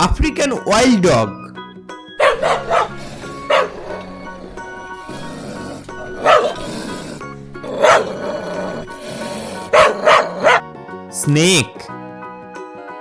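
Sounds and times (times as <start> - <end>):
background music: 0.0 - 13.0
wild dog barking: 2.2 - 10.8.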